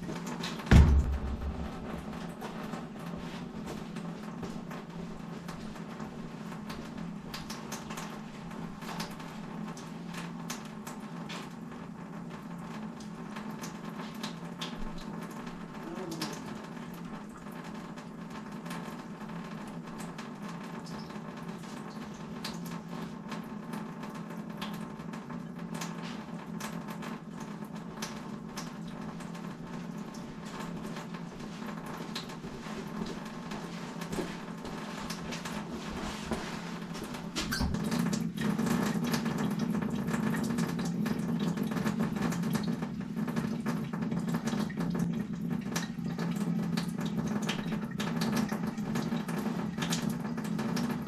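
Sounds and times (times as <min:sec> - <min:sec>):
steady low hum: 0:00.7 - 0:02.8.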